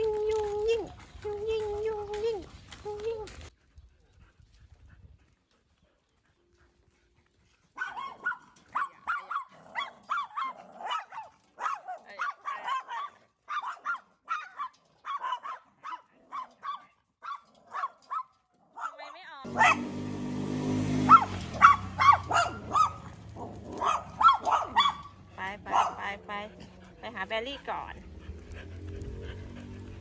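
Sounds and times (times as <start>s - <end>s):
dog barking: 7.8s - 20.1s, 20.9s - 26.2s.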